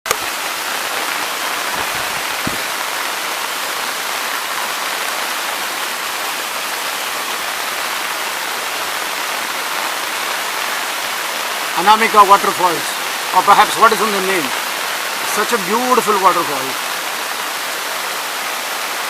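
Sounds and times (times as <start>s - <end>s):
waterfall rushing: 0.1s - 19.0s.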